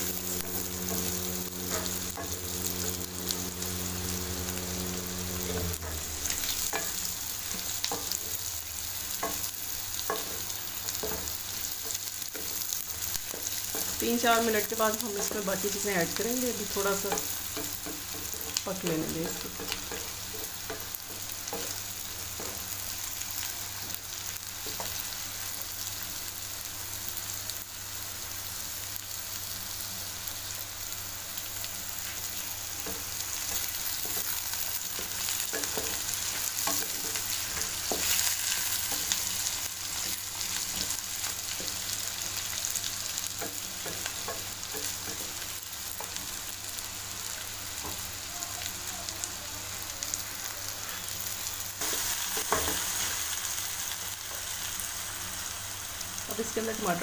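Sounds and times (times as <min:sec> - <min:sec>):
spatula scraping a pan: 0:00.0 - 0:15.8, 0:32.0 - 0:46.2
potatoes and onions sizzling in oil: 0:00.0 - 0:57.0.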